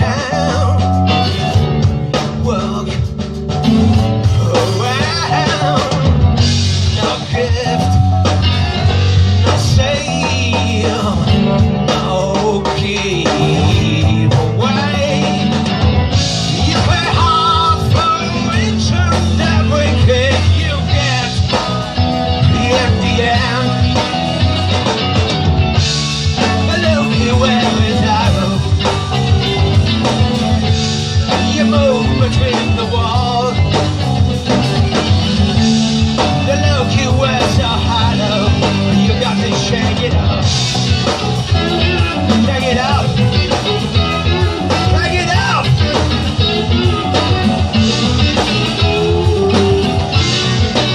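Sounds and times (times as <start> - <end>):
person singing: 0.0 - 8.8, 9.4 - 15.7, 16.5 - 24.8, 26.2 - 30.4, 31.2 - 33.8, 41.5 - 50.9
guitar: 0.0 - 50.9
live rock band playing: 0.0 - 50.9.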